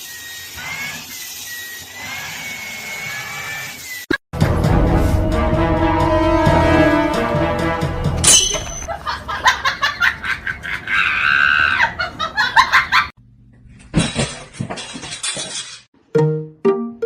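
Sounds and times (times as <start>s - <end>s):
people laughing: 8.9s - 13.1s.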